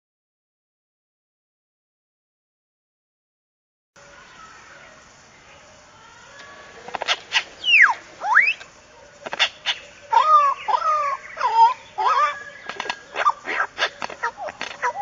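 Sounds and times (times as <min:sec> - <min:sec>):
short wavering animal calls: 0:06.6 - 0:08.7, 0:09.3 - 0:15.0
animal whistle-like calls: 0:07.0 - 0:08.7, 0:09.3 - 0:15.0
sharp clicks: 0:12.6 - 0:15.0.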